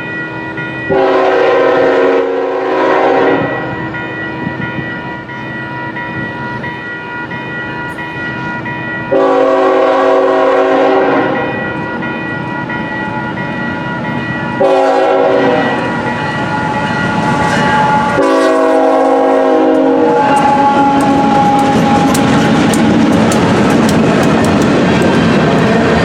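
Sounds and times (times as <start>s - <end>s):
passing train rumble: 0.0s - 26.0s
locomotive air horn blasts: 0.9s - 3.8s, 9.1s - 11.5s, 14.6s - 22.4s
bell ringing: 3.6s - 9.4s, 11.4s - 18.3s.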